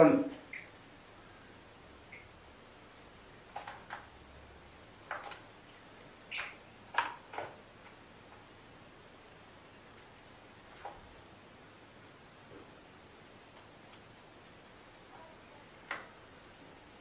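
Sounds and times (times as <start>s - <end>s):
bird pecking taps and clicks: 3.5s - 4.1s, 5.0s - 5.4s, 6.3s - 7.6s.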